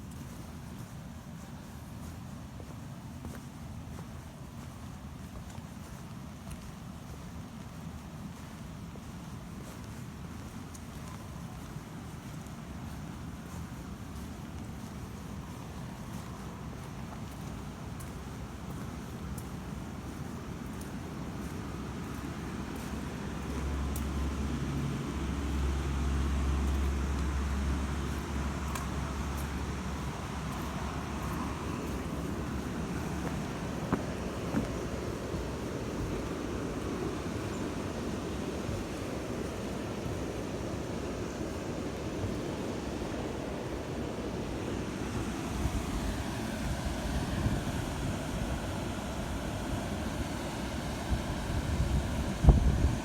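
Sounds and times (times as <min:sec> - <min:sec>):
wind buffeting microphone: 0:26.4 - 0:53.0.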